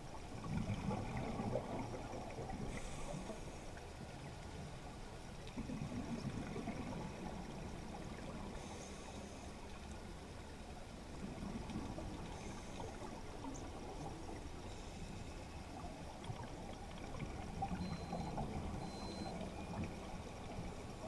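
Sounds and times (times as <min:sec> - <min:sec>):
rush of water: 0:15.6 - 0:21.0.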